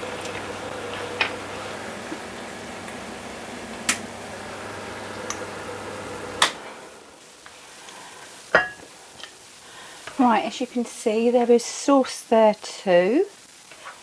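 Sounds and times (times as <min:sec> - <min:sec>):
steady background hum: 0:00.0 - 0:11.7
serving utensil clinking on cookware: 0:08.6 - 0:08.9.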